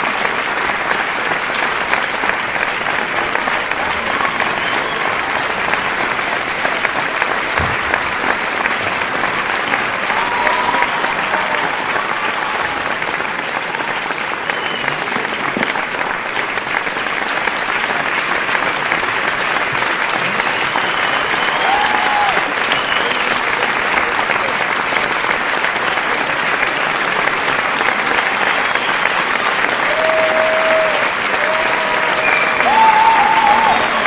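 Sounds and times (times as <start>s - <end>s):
crowd applauding: 0.0s - 34.0s.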